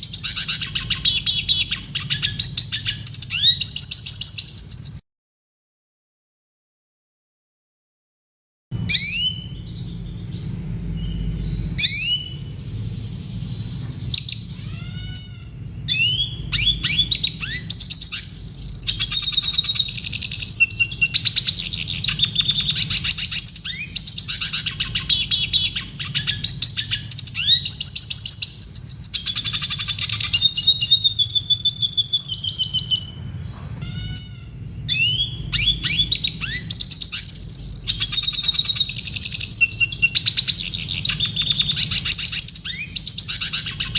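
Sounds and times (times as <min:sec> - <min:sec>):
bird twittering song: 0:00.0 - 0:05.0, 0:08.8 - 0:43.9
steady low hum: 0:08.7 - 0:43.9.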